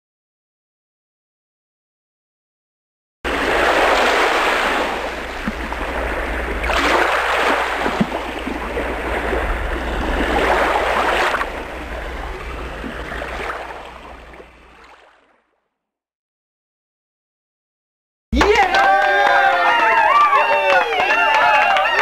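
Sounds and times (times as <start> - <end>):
steady low rumble: 3.3 - 14.9
waves washing onto beach: 3.3 - 15.1.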